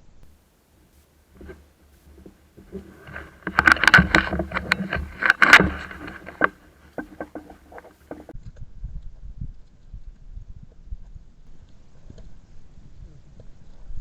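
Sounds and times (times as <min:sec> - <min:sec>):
brushing against microphone: 0:00.3 - 0:08.3
rustling through undergrowth: 0:00.3 - 0:08.3.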